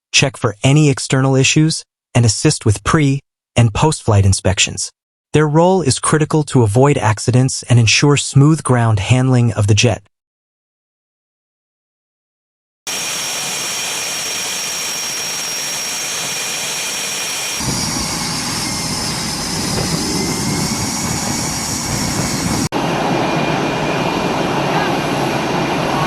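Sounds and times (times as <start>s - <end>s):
jet engine whine: 12.9s - 26.0s
deep rumbling engine: 17.5s - 26.0s.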